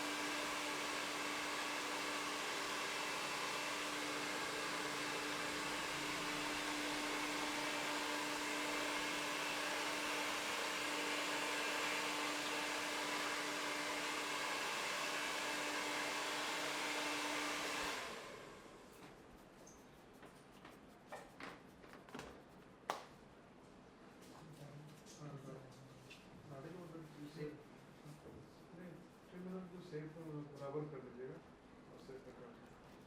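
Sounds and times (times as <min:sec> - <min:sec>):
electric appliance motor running: 0:00.0 - 0:18.7.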